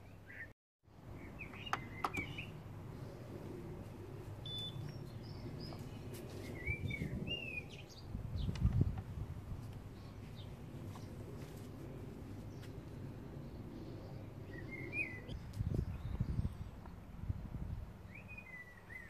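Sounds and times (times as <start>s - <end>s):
small birds chirping: 0.0s - 17.1s, 18.0s - 19.0s.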